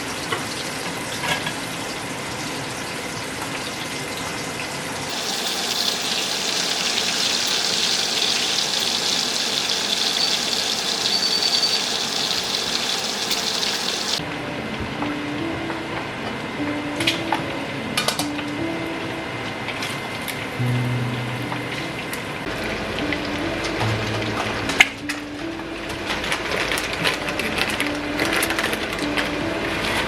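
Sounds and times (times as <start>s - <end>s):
water running from tap: 5.1s - 14.2s.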